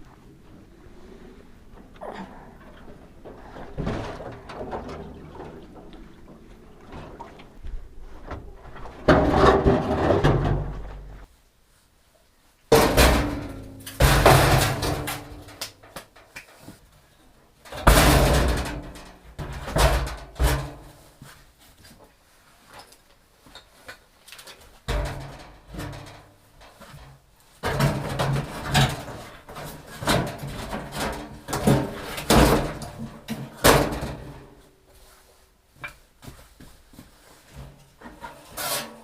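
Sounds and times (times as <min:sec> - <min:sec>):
machine parts clunking and scraping: 0:02.7 - 0:11.3, 0:24.8 - 0:34.5.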